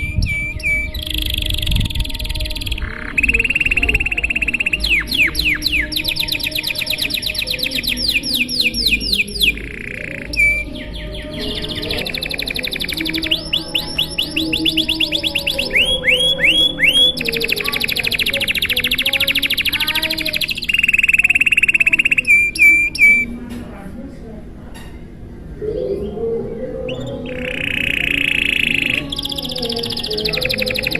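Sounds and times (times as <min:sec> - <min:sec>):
canary singing trills: 0:00.0 - 0:23.4, 0:25.6 - 0:30.9.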